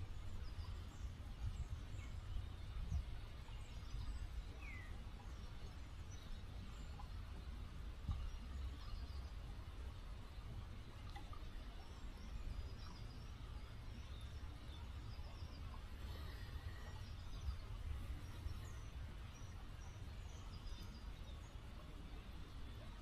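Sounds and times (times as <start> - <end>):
small birds chirping: 0.0 - 10.2, 11.1 - 23.0
river flowing: 0.0 - 23.0.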